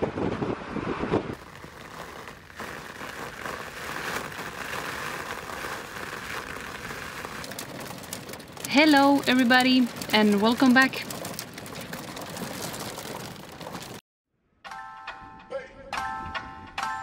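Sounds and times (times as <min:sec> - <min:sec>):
wind buffeting microphone: 0:00.0 - 0:01.6
heavy rain falling: 0:01.4 - 0:14.0.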